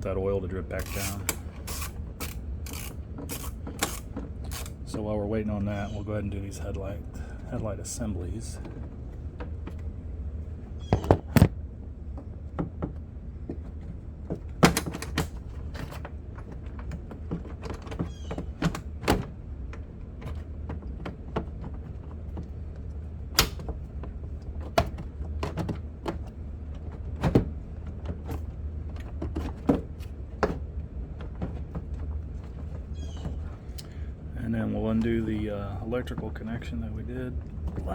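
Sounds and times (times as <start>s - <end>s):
steady low hum: 0.0s - 37.9s
hand tools clicking and knocking: 0.7s - 4.8s.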